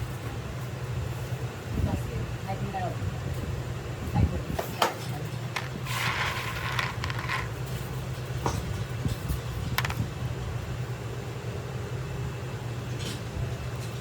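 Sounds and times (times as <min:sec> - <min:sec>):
brief scraping: 0:05.8 - 0:07.5.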